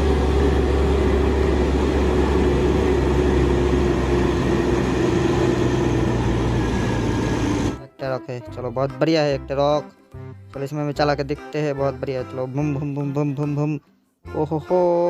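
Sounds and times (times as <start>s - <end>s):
toy truck motor drone: 0.0s - 7.8s.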